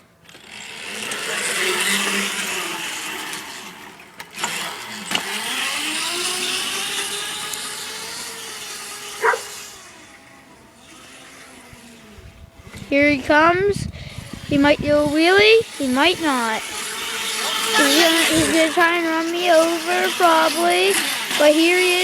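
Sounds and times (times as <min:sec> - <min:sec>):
mini bike engine revving: 0:00.0 - 0:22.0.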